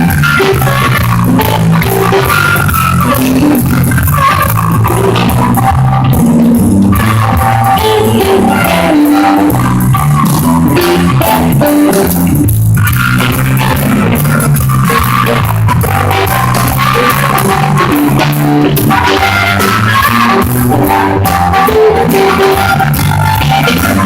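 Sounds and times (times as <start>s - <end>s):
bass guitar: 0.0s - 24.0s
drum kit: 0.0s - 24.0s
electric guitar: 0.0s - 24.0s.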